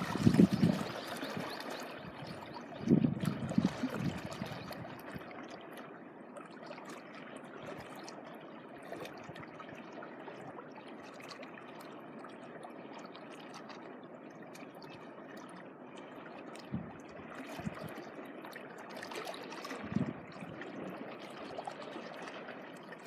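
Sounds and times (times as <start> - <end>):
sea water washing at shore: 0.0 - 5.8, 16.5 - 23.0.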